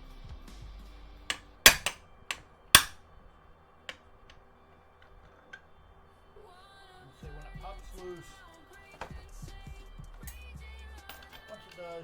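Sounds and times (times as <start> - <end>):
hammer striking hard drive: 1.3 - 2.0, 2.8 - 3.0.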